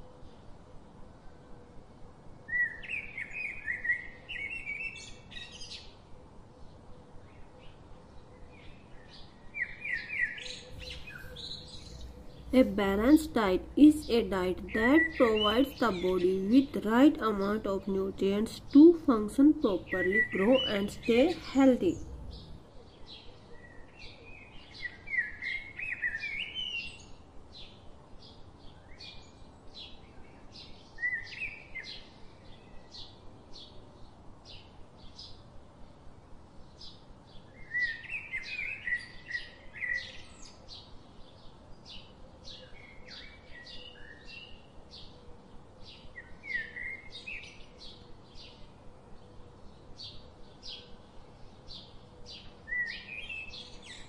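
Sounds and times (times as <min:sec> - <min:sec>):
birds chirping: 0:10.1 - 0:22.7.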